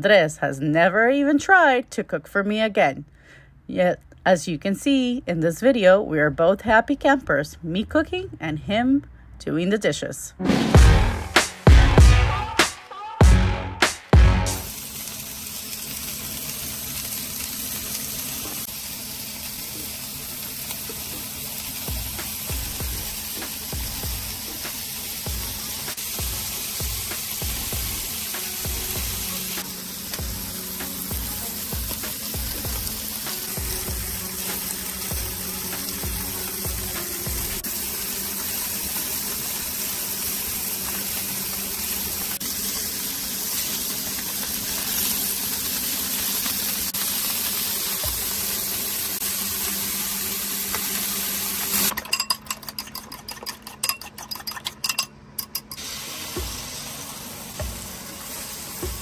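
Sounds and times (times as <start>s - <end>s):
sausage sizzling on a griddle: 14.5s - 51.9s, 55.8s - 59.0s.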